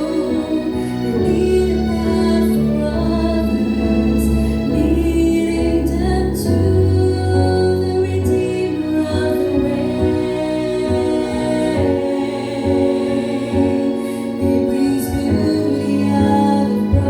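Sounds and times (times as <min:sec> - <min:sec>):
woman singing gospel: 0:04.8 - 0:17.0.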